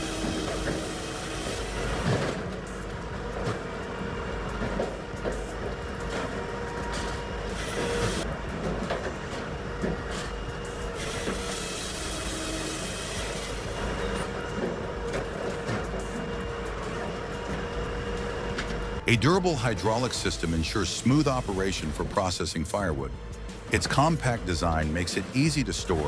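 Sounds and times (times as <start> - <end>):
firewood processor droning: 0.0 - 26.0.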